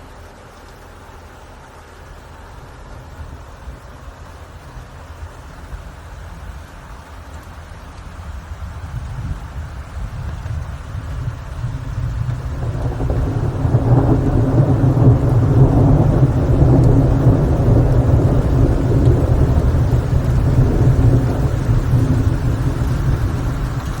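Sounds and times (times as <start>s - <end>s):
steady rain: 0.0s - 24.0s
deep low rumble: 8.0s - 24.0s.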